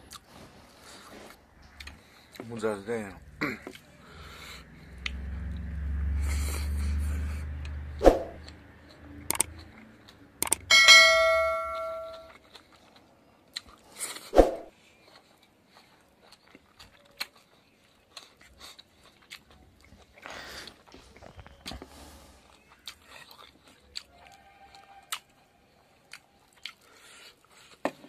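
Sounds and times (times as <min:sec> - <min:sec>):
chewing and wet smacking: 0:00.0 - 0:00.4, 0:01.2 - 0:02.8, 0:03.6 - 0:07.8, 0:08.4 - 0:10.6, 0:12.3 - 0:27.8
short ringing chime: 0:10.7 - 0:12.3.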